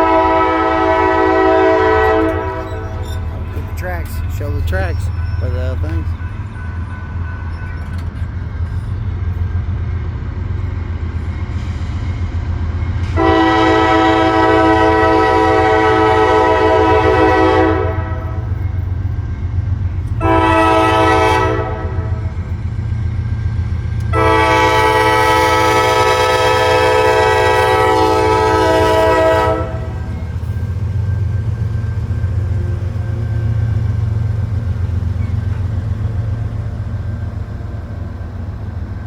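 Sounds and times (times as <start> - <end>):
train air horn blasts: 0.0 - 3.0, 13.2 - 18.5, 20.2 - 22.3, 24.1 - 30.1
train rumbling: 0.0 - 39.0.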